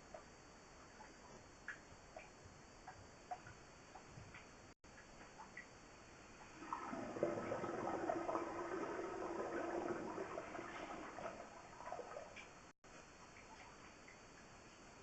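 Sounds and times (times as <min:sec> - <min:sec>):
water rushing through drain pipes: 0:06.4 - 0:12.7.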